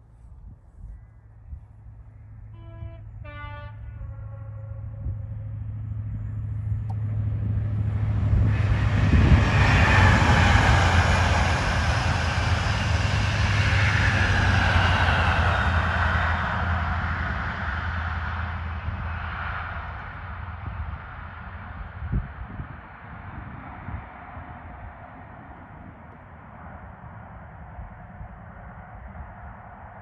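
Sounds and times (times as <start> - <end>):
diesel train passing at speed: 1.3 - 30.0
two-tone train horn: 2.5 - 5.6.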